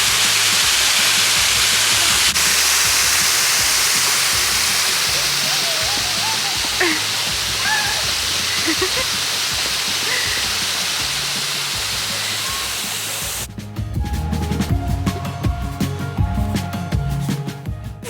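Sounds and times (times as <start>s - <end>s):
rushing water: 0.0s - 13.5s
background music with beat: 0.0s - 18.0s.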